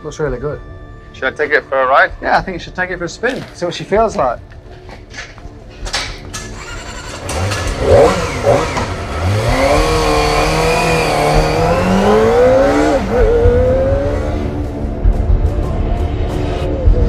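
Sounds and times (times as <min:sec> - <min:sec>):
motorcycle engine revving: 0:06.3 - 0:15.1.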